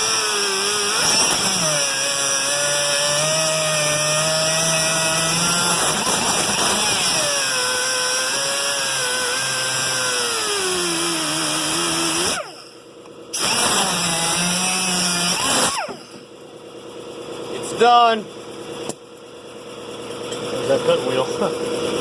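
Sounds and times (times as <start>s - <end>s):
angle grinder cutting metal: 0.0s - 12.8s, 13.4s - 16.3s.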